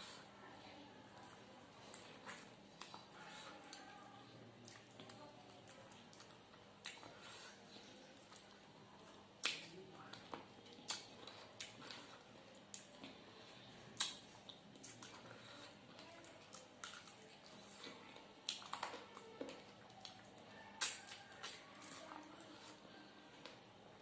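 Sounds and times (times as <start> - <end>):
person crunching and chewing food: 4.6 - 23.6.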